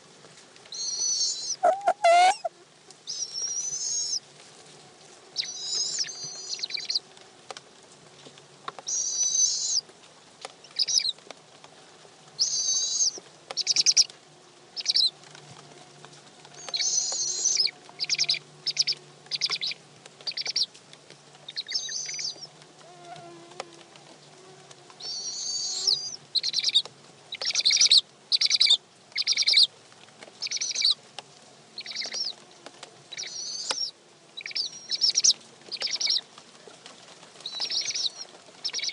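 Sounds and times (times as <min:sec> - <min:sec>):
owlets squealing: 0:00.8 - 0:02.6.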